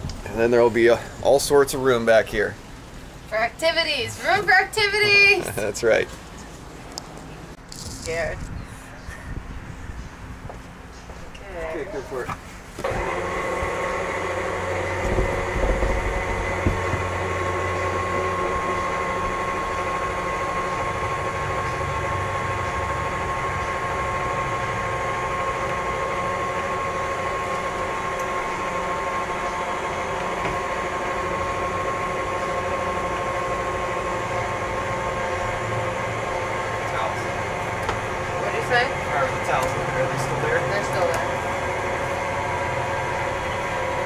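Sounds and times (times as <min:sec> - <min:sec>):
winch motor whining: 0:12.8 - 0:44.0.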